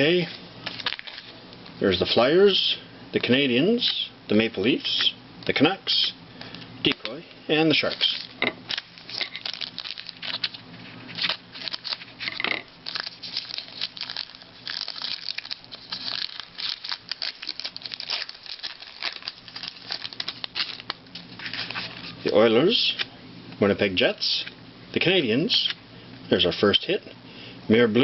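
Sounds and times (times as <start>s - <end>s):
cards rustling and clicking: 0.6s - 1.3s, 6.0s - 22.4s
card wrappers crinkling and tearing: 0.6s - 1.4s, 6.9s - 22.3s.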